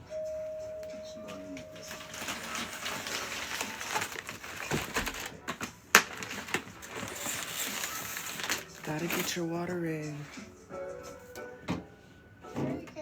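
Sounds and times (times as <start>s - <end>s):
crackling handling noises: 0.8s - 10.6s.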